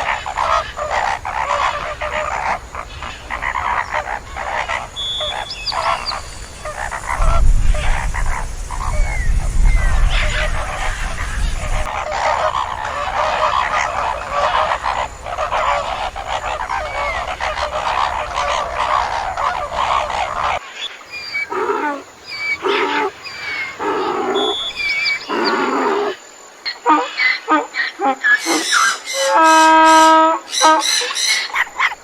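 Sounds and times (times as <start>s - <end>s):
animals calling: 0.0s - 32.0s
higher chirps: 13.4s - 26.2s.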